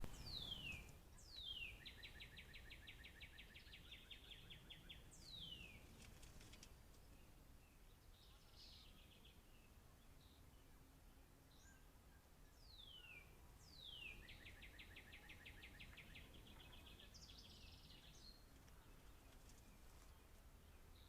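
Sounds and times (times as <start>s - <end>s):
songbird whistles and trills: 0.0s - 5.8s, 11.5s - 18.5s.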